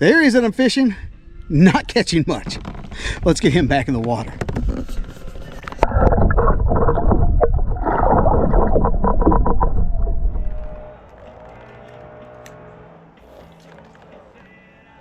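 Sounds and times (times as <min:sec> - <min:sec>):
wind buffeting microphone: 0:03.1 - 0:10.8
water splashing against kayak: 0:04.4 - 0:10.8
background music: 0:10.3 - 0:15.0.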